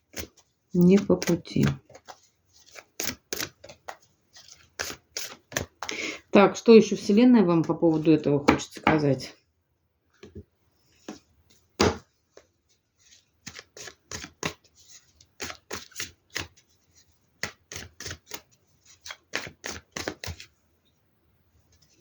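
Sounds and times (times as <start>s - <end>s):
cards being shuffled: 0.1s - 6.0s, 13.1s - 20.5s.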